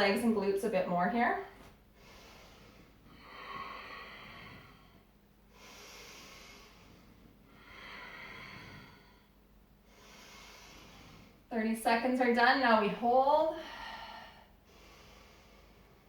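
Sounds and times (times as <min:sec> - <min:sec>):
woman breathing: 0:01.4 - 0:11.5, 0:13.0 - 0:16.0.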